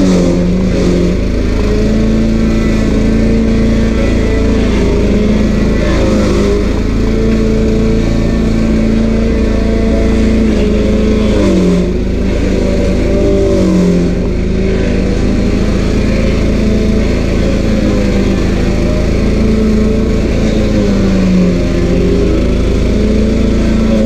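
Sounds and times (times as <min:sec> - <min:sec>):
cutter wheel grinding stump: 0:00.0 - 0:24.0
engine running hard: 0:00.0 - 0:24.0.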